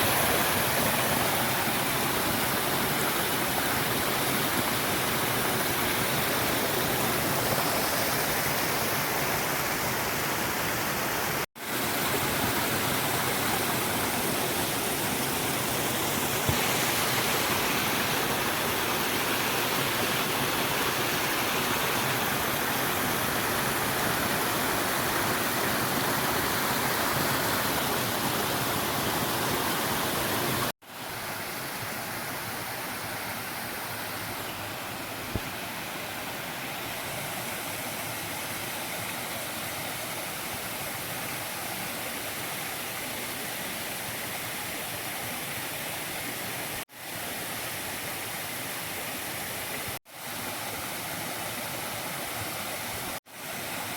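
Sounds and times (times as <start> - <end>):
creek water rushing: 0.0 - 53.9.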